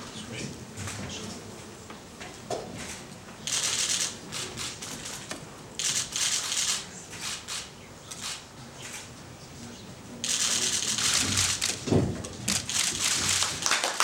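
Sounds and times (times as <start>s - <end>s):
camera shutters clicking: 2.9s - 9.0s, 10.2s - 11.8s, 12.5s - 13.6s.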